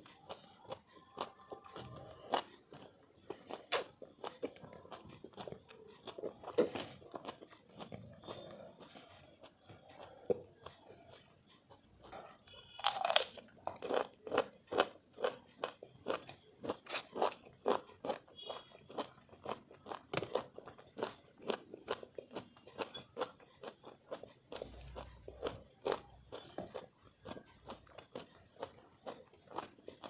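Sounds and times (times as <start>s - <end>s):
crunchy chewing: 0.0s - 30.0s.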